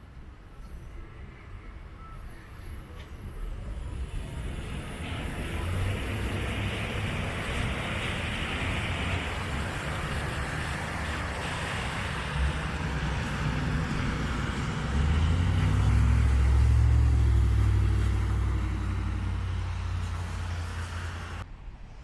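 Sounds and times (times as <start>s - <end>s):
vehicle engine passing: 3.8s - 21.4s
floodwater rushing: 3.9s - 19.9s.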